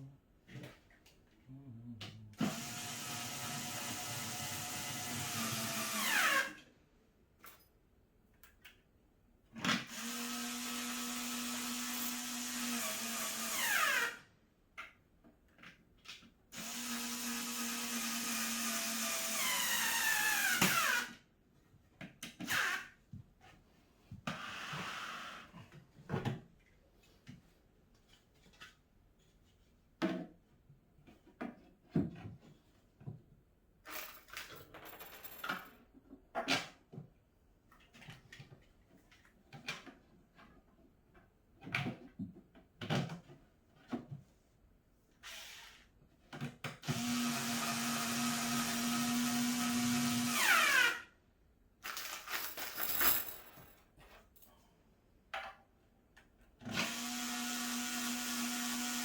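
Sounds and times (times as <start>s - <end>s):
power drill driving screws: 2.4s - 6.5s, 9.8s - 14.2s, 16.6s - 21.2s, 46.8s - 51.0s, 56.7s - 59.0s.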